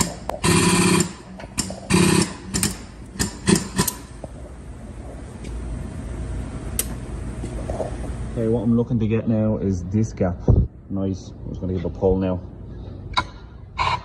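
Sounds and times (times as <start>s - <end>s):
dent-pulling tool buzzing: 0.0s - 4.0s.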